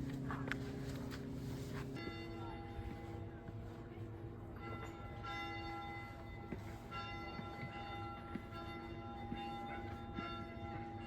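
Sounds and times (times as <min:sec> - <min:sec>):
church bell ringing: 0:02.0 - 0:03.3, 0:04.2 - 0:11.0.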